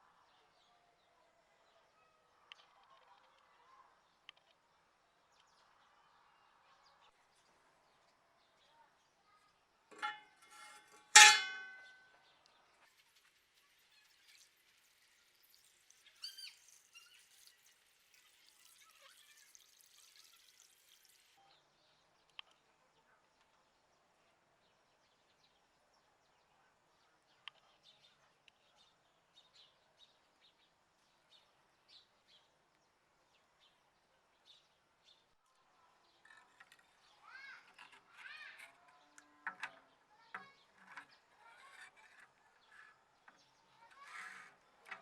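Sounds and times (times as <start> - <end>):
birds chirping: 15.3 - 17.7.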